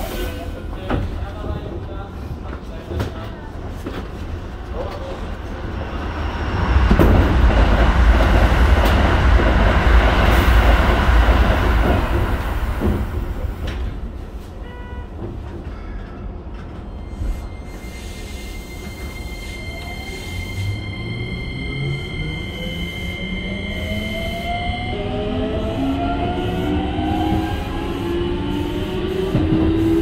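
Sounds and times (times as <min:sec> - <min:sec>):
train wheels rumbling on rail: 0:00.0 - 0:21.0, 0:21.6 - 0:30.0.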